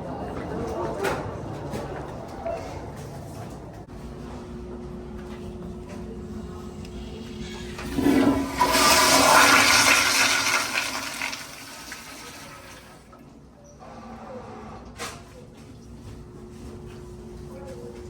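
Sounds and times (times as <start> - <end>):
toilet flushing: 7.0 - 13.2.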